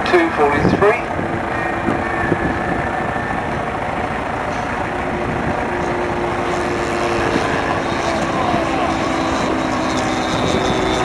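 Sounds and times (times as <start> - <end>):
model plane propeller engines droning: 0.0 - 11.0.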